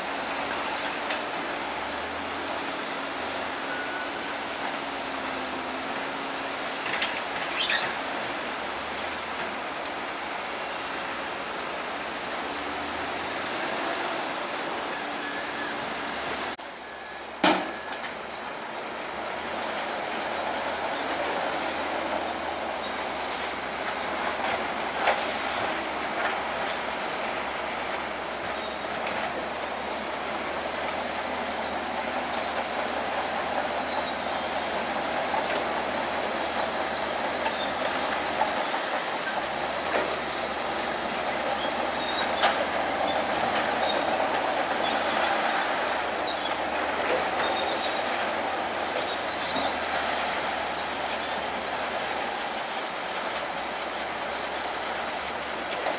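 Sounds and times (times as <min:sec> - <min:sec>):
diesel engine running: 0:00.0 - 0:55.9
steel tracks clanking: 0:00.0 - 0:55.9
track links squealing: 0:07.1 - 0:08.1, 0:19.3 - 0:55.1.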